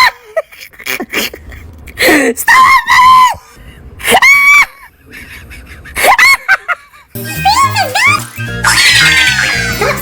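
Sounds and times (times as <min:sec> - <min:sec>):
high-pitched screaming: 0:07.2 - 0:10.0.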